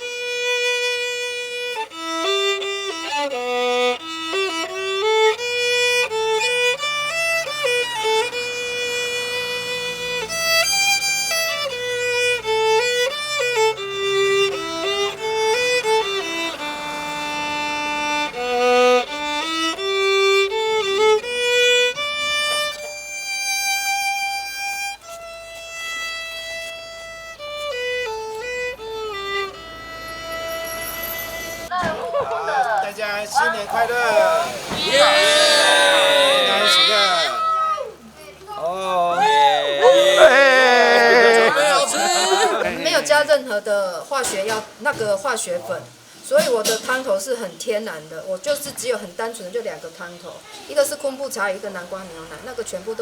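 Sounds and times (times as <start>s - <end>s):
solo violin melody: 0.0s - 31.7s.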